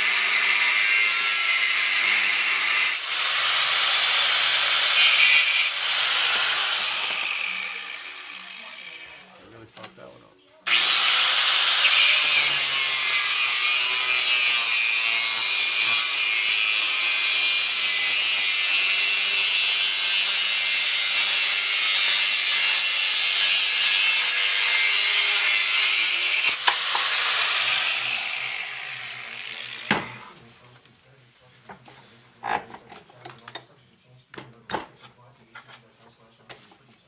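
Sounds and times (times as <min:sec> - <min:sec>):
grinder on steel: 0:00.0 - 0:09.4, 0:10.7 - 0:30.4.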